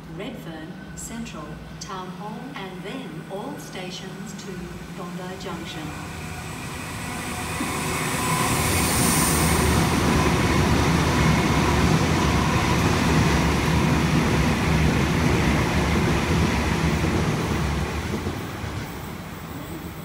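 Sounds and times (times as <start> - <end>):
train wheels rushing on rail: 5.9 - 20.0.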